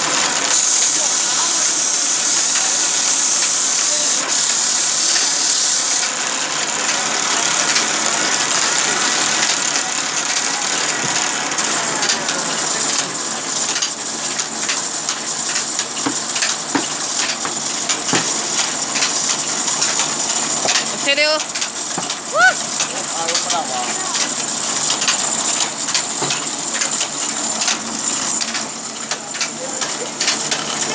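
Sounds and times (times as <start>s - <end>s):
sawmill machinery running: 0.0s - 30.9s
knocks and clicks: 12.9s - 22.2s, 24.2s - 27.8s.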